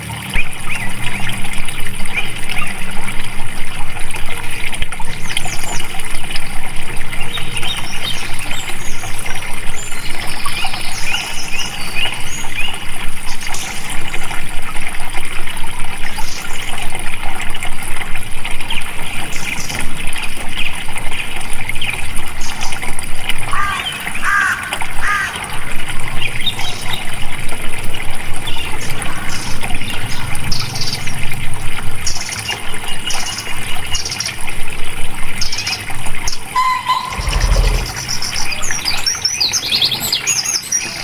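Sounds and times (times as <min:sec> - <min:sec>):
birds chirping: 0:00.0 - 0:14.3, 0:27.9 - 0:41.0
water flowing and splashing: 0:00.0 - 0:40.3.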